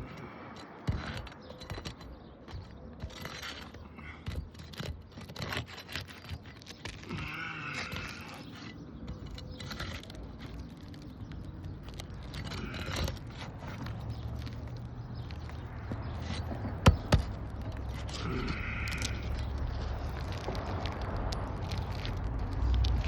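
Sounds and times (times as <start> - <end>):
roof shingles crackling and scraping: 0.0 - 23.0
sharp knocks: 15.8 - 17.4.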